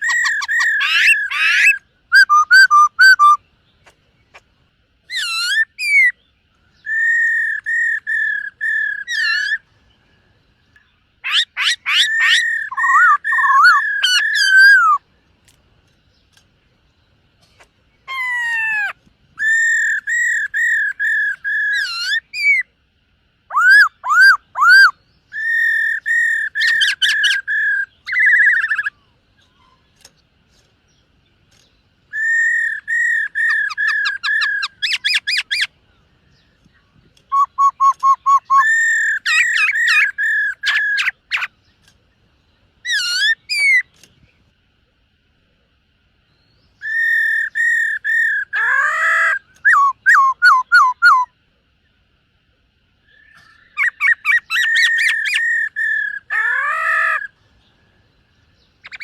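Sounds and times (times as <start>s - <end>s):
bird singing whistled phrases: 0.0s - 3.5s, 5.1s - 9.6s, 11.2s - 15.0s, 18.0s - 22.7s, 23.5s - 29.8s, 32.1s - 35.7s, 37.2s - 41.5s, 46.4s - 51.4s, 53.0s - 57.3s, 58.8s - 59.0s.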